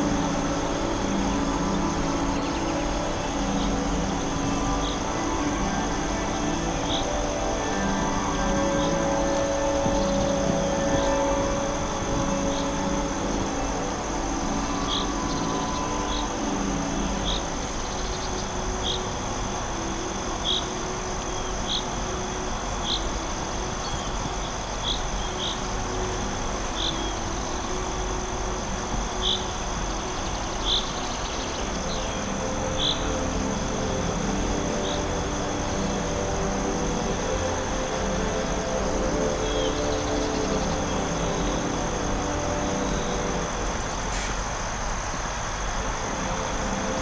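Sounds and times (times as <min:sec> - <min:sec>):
insects droning: 0:00.0 - 0:47.0.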